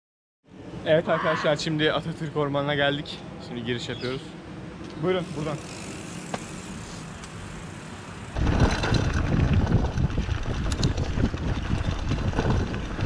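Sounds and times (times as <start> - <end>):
wind buffeting microphone: 8.3 - 13.0.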